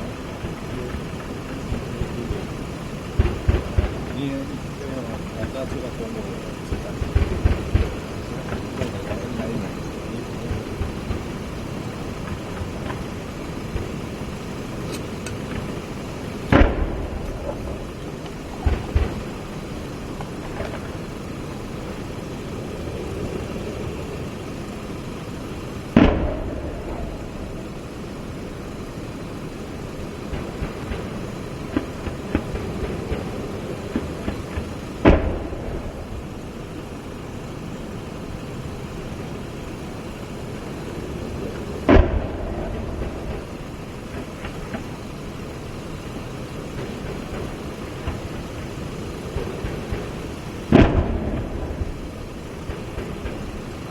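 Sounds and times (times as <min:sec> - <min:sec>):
loud gunshots with echo: 0:00.0 - 0:22.2, 0:25.9 - 0:28.7, 0:30.2 - 0:36.8, 0:41.8 - 0:45.1, 0:46.8 - 0:53.8
low background rumble: 0:00.0 - 0:53.9
smaller gunshot cracks: 0:16.5 - 0:19.4, 0:26.0 - 0:27.6, 0:33.9 - 0:36.2, 0:41.8 - 0:43.5, 0:49.4 - 0:53.5.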